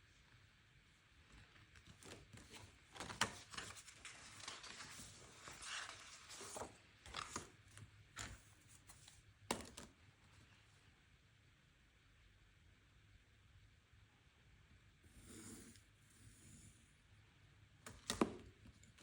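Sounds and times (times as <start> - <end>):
paper rustling and scraping: 1.6 - 9.2.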